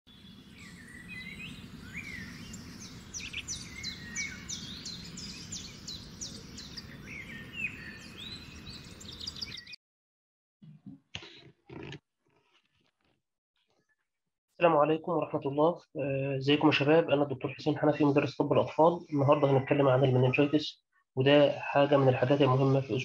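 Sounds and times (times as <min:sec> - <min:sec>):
birds chirping: 0:00.1 - 0:09.8, 0:16.7 - 0:20.6.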